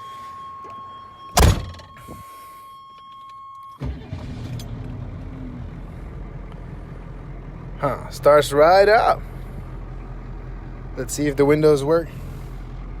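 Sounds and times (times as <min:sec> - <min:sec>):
loud thump: 0:01.4 - 0:01.9
diesel engine starting and idling: 0:03.8 - 0:13.0.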